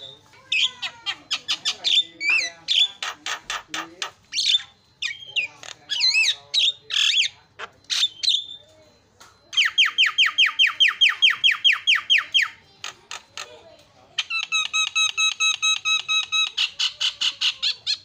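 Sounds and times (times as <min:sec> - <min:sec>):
bird singing squawks and whistles: 0:00.0 - 0:08.7.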